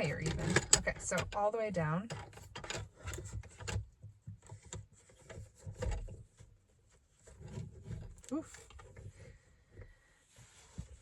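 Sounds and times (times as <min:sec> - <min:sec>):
car seat adjusting clicks and knocks: 0:00.0 - 0:01.5, 0:02.1 - 0:06.6.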